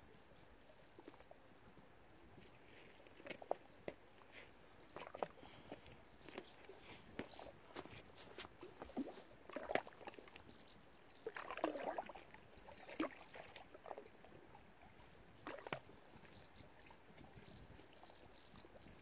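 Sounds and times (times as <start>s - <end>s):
water splashing: 8.1s - 10.5s, 11.2s - 14.2s, 15.4s - 15.9s.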